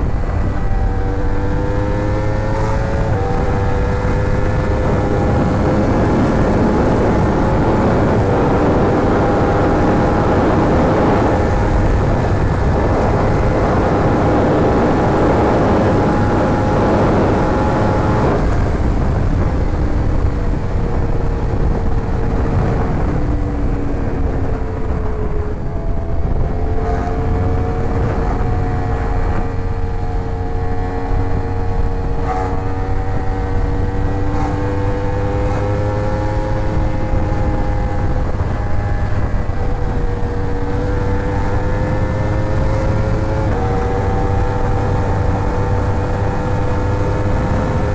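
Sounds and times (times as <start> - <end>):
motorcycle engine running: 0.0 - 47.9
wind noise on microphone: 0.0 - 47.9.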